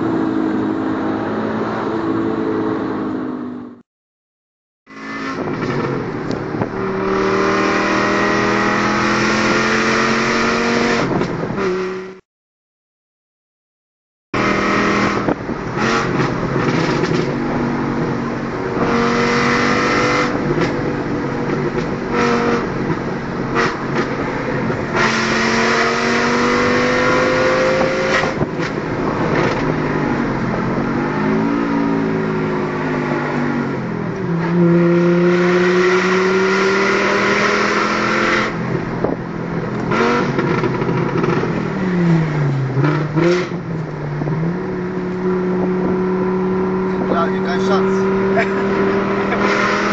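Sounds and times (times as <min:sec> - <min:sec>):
car engine accelerating: 0:04.9 - 0:12.2, 0:14.4 - 0:49.9.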